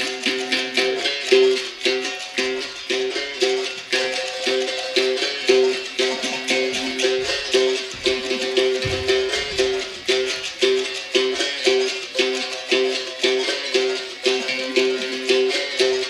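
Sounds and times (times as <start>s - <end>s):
berimbau playing a rhythm: 0.0s - 16.0s
shaker rattle: 0.0s - 16.0s.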